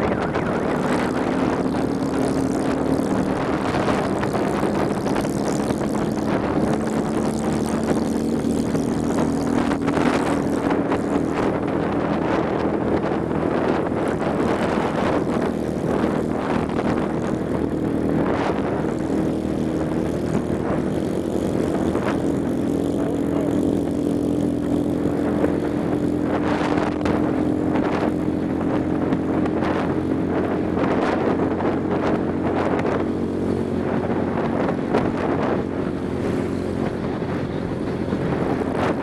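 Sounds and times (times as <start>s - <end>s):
motorcycle engine running: 0.0s - 39.0s
wind gusts on microphone: 0.0s - 39.0s.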